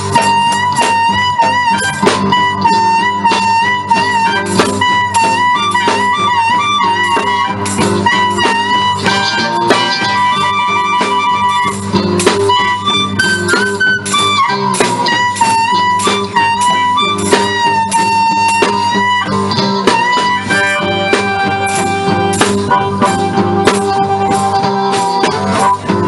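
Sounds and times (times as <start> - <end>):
bending lead guitar notes: 0.0 - 26.0
live blues band playing: 0.0 - 26.0.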